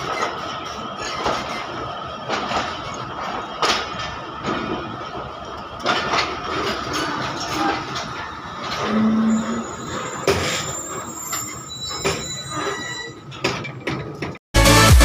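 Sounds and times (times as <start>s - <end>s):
train coaches rumbling: 0.0s - 14.4s
high metallic wheel squeal: 6.9s - 13.9s
electronic dance music: 14.6s - 15.0s.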